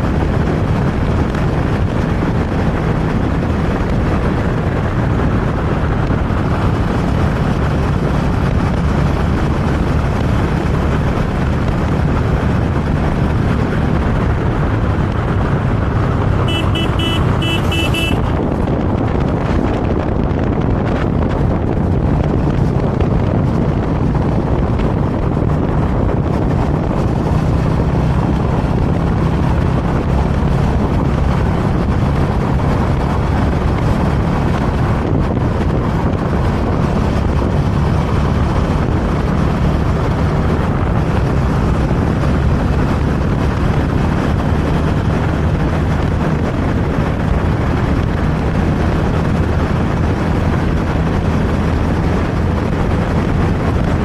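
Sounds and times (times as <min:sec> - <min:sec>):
motorcycle engine humming: 0:00.0 - 0:54.0
wind noise on microphone: 0:00.0 - 0:54.0.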